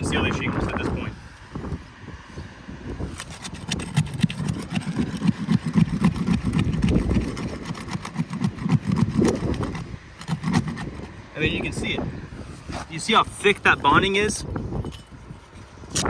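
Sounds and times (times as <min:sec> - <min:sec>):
shingles cracking and scraping: 0:03.1 - 0:11.2.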